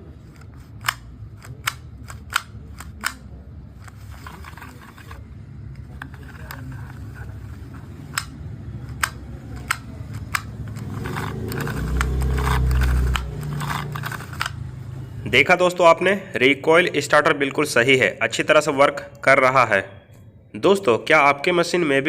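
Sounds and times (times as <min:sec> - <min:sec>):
low engine rumble: 0:00.0 - 0:15.6.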